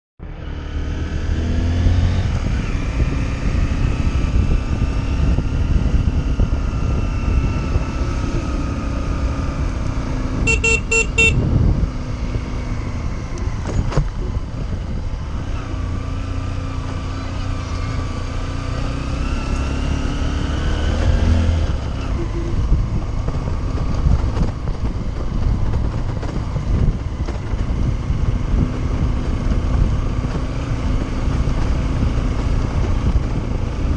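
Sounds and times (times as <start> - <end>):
motorcycle engine running: 0.2 - 33.9
wind rumble on microphone: 0.2 - 33.9
vehicle horn honking: 10.4 - 11.5.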